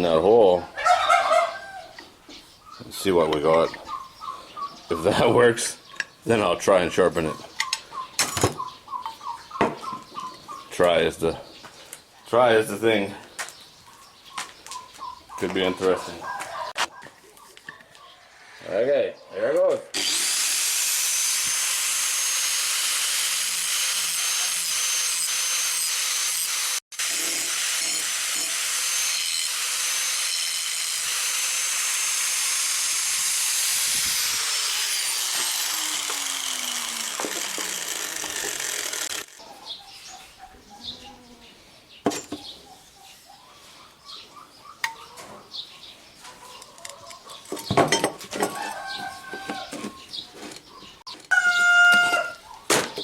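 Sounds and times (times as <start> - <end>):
angle grinder cutting steel: 19.9 - 39.5
grinder disc winding down: 20.0 - 39.4
blade clicking and clattering: 35.4 - 39.4.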